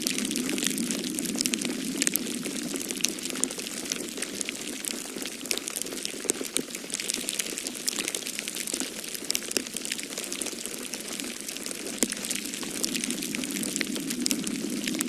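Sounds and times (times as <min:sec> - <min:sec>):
wood fire crackling and popping: 0:00.0 - 0:15.0
snowstorm wind rushing: 0:12.3 - 0:15.0.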